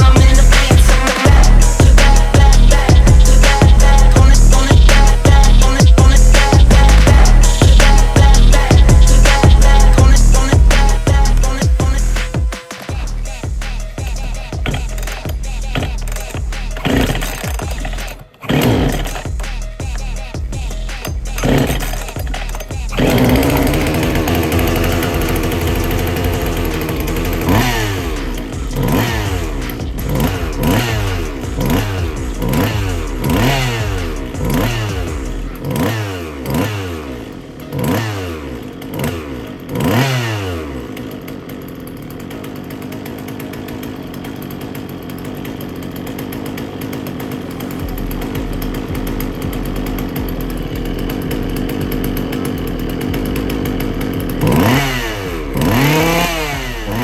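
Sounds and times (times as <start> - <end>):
chainsaw engine idling and revving: 0.0 - 57.0.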